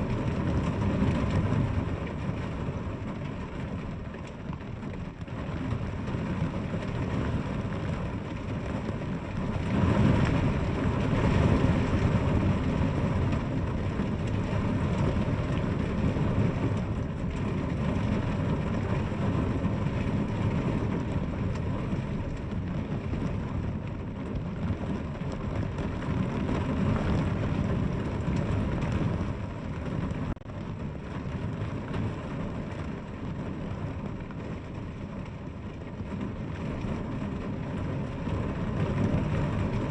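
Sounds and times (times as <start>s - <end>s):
deep rumble: 0.0s - 39.9s
heavy rain falling: 0.0s - 39.9s.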